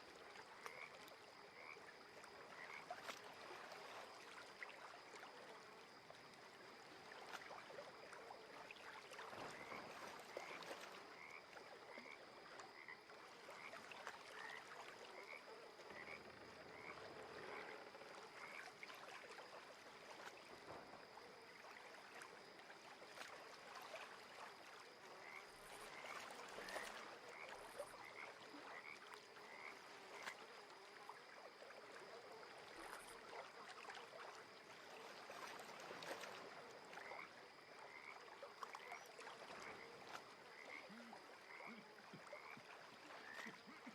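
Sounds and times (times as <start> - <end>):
frogs chirping calls: 0.4 - 3.1, 9.4 - 18.9, 24.9 - 33.6, 36.2 - 43.9.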